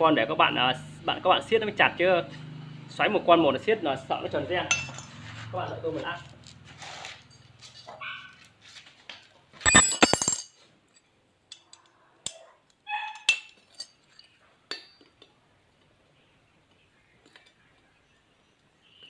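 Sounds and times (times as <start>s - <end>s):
metal tools clinking and clattering: 4.7s - 5.2s, 7.2s - 8.0s, 9.6s - 15.3s.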